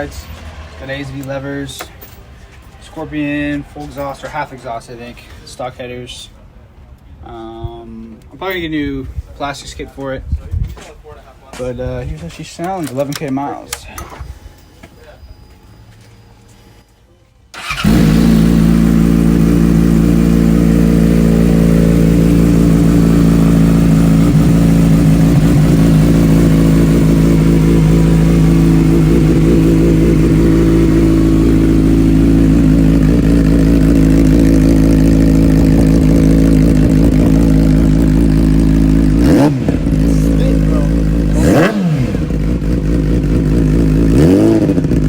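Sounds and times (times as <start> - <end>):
motorcycle engine idling loudly: 17.6 - 45.0.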